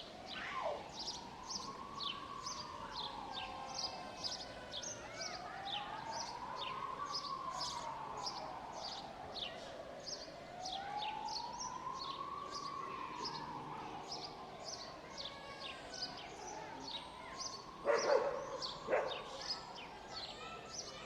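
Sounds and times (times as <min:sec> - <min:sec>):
birds chirping: 0:00.0 - 0:21.0
siren wailing: 0:00.3 - 0:04.3.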